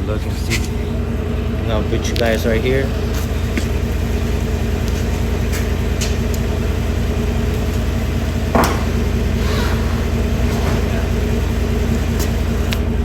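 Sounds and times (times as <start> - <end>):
pickup engine idling: 0.0 - 13.0
thump: 8.5 - 11.0.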